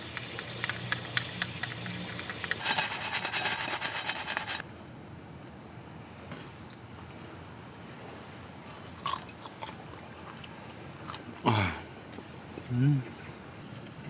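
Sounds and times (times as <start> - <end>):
rasping scraping: 0.0 - 4.6.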